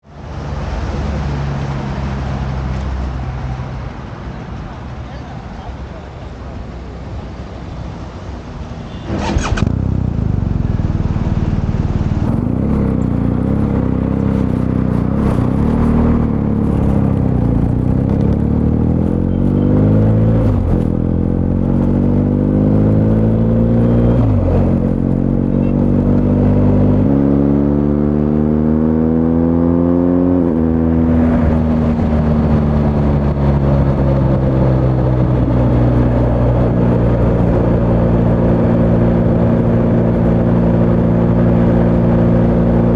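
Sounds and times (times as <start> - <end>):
motorcycle engine accelerating: 9.0 - 42.9.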